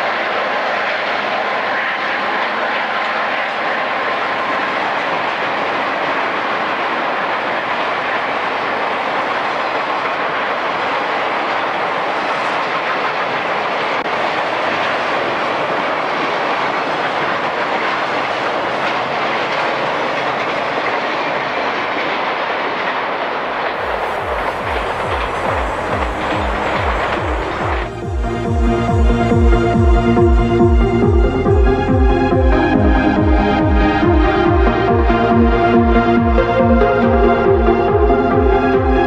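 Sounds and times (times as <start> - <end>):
freight train wheels rumbling: 0.0 - 39.0
wheels clacking over rail joints: 0.0 - 39.0.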